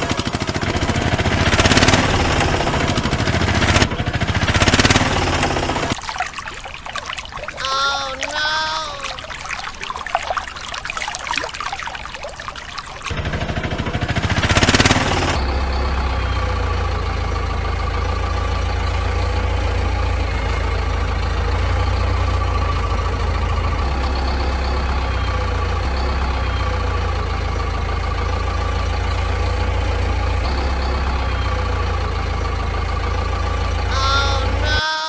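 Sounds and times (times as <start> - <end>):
vehicle engine idling: 13.1 - 34.7.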